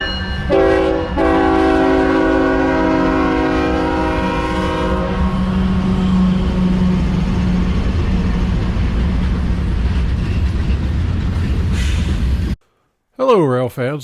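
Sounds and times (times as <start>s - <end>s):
freight train rumbling past: 0.0s - 12.6s
locomotive air horn blasts: 0.5s - 6.9s.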